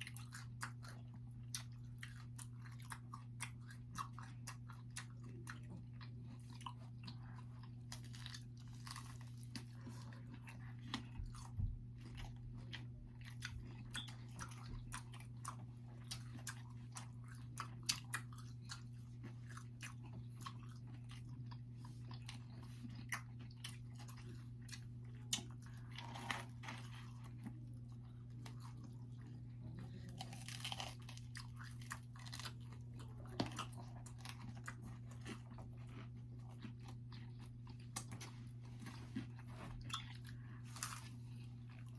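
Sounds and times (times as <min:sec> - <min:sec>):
chewing crunchy pizza crust: 0:00.0 - 0:41.9
steady low hum: 0:00.0 - 0:41.9.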